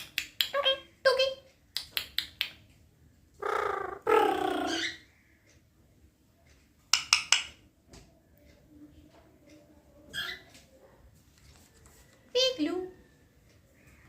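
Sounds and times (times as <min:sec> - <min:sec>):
parrot voice-like calls: 0:03.4 - 0:05.1.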